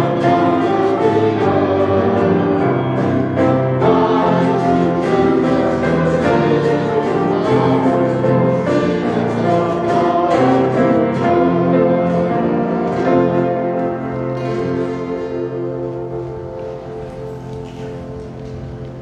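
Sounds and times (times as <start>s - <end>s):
choir singing a hymn: 0.0s - 18.0s
instrumental accompaniment: 0.0s - 19.0s.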